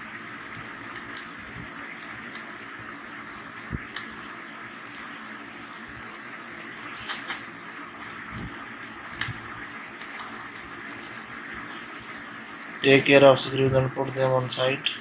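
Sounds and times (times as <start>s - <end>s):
steady background hiss: 9.7s - 15.0s.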